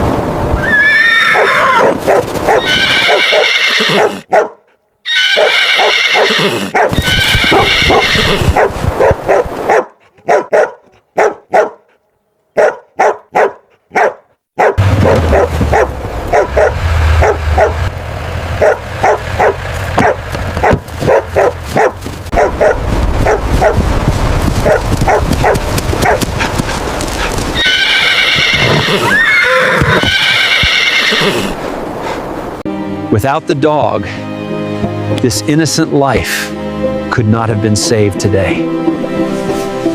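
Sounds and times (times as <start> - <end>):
horse whinnying: 0.6 - 4.3, 5.0 - 8.7, 27.6 - 31.6
low rumble: 14.8 - 27.6
rapid knocking: 20.0 - 22.3, 24.4 - 27.6.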